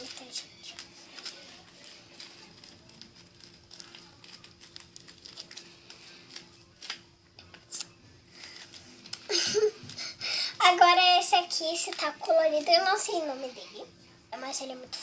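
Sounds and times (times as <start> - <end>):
paper crinkling and clicks: 0.0 - 10.1, 11.4 - 13.2
faint steady hum: 0.0 - 15.0.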